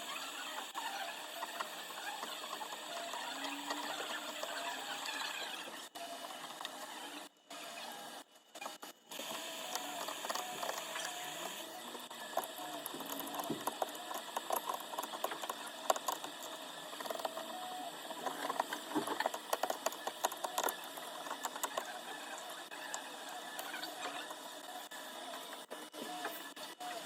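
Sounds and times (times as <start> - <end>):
tools clicking and scraping on phone: 8.6 - 24.5.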